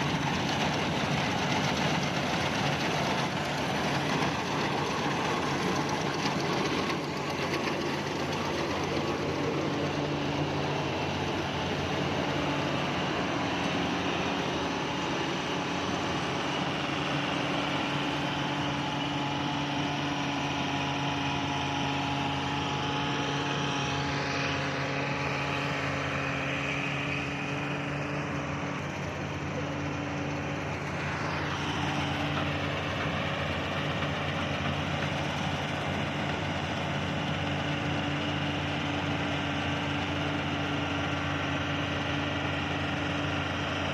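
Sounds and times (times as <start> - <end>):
harvesting machine engine running: 0.0 - 43.9.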